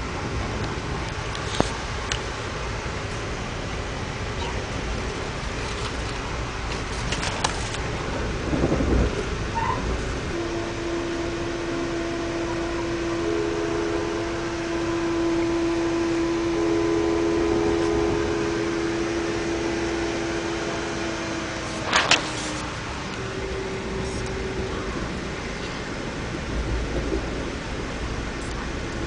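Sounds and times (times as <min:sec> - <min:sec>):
steady hum: 0:00.0 - 0:29.0
train running noise inside coach: 0:00.0 - 0:29.0.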